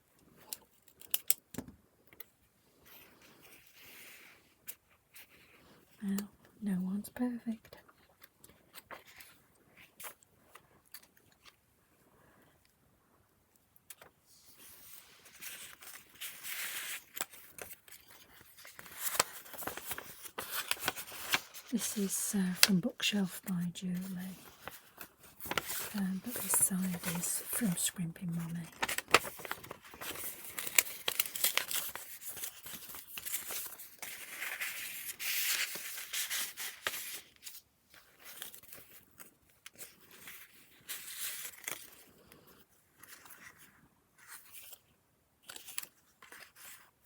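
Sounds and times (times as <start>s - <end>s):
paper pages rustling: 7.9s - 11.6s, 13.9s - 42.1s, 42.9s - 47.0s
paper sliding rustle: 14.4s - 22.7s, 24.0s - 42.0s.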